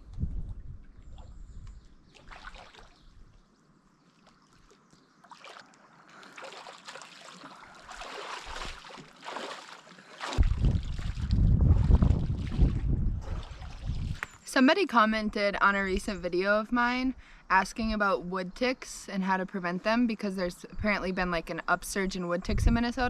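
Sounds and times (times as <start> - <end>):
wind rumble on microphone: 0.0 - 2.1, 10.4 - 14.4, 22.4 - 23.0
paddle splashing water: 2.1 - 3.0, 4.1 - 14.4.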